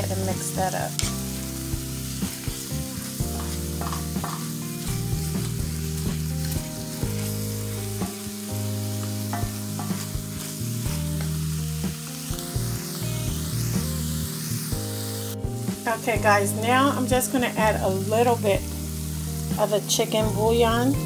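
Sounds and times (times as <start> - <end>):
low background music: 0.0 - 21.0
vegetables sizzling in oil: 0.0 - 21.0
wooden spoon scraping a pan: 2.2 - 4.6, 9.0 - 11.4.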